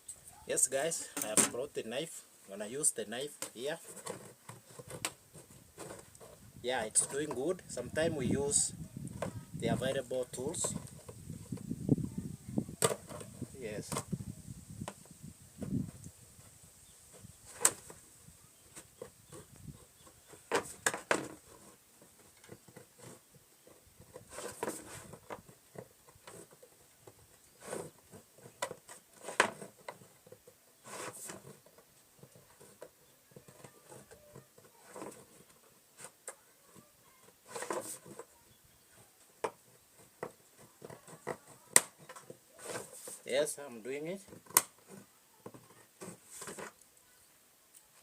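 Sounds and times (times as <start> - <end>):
knife scraping plastic pipe: 3.5 - 7.8, 18.6 - 43.3, 44.2 - 46.8.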